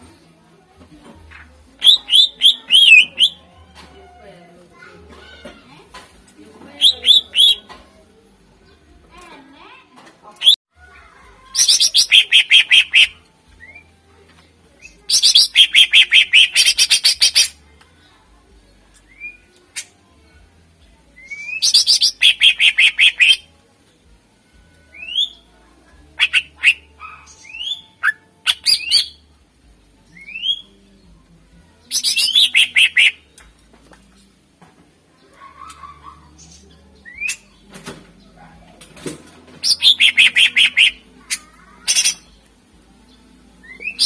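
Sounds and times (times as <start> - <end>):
bird singing rapid chattering notes: 1.8 - 3.4, 6.8 - 7.8, 11.6 - 13.8, 14.8 - 17.6, 21.2 - 23.4, 31.9 - 33.2, 39.6 - 42.5.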